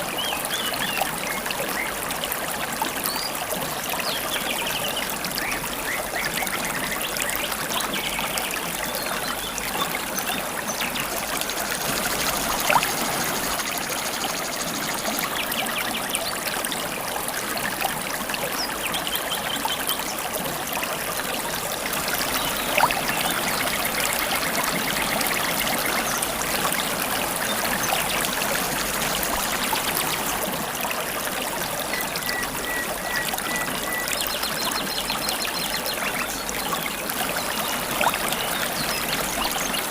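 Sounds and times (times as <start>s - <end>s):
river water babbling: 0.0s - 39.9s.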